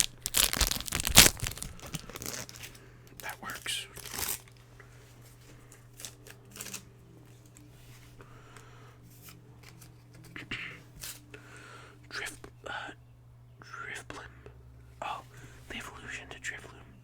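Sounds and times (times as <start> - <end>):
trading cards rustling and flicking: 0.0 - 4.6, 5.8 - 7.6.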